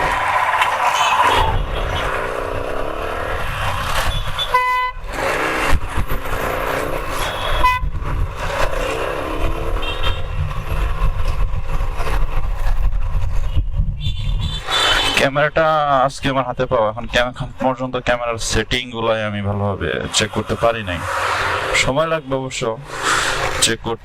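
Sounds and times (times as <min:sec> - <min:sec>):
motorcycle engine: 0:00.0 - 0:11.3, 0:20.0 - 0:22.0
wind rumbling on microphone: 0:00.0 - 0:15.3
vehicle horn honk: 0:04.1 - 0:05.0, 0:07.2 - 0:07.9, 0:09.8 - 0:10.3.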